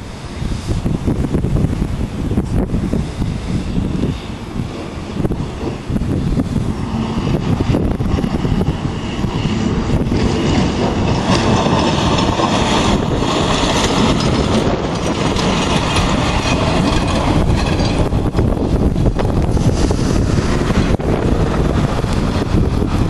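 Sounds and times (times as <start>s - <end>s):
blizzard wind roaring: 0.0s - 23.0s
wind buffeting microphone: 0.0s - 23.0s.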